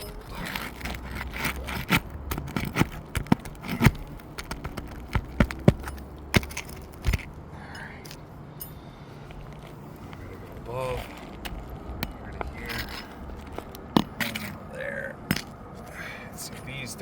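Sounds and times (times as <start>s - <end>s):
roofing tool scraping shingles: 0.0s - 7.4s, 10.4s - 16.0s
sharp clicks and knocks on nails: 0.5s - 9.6s.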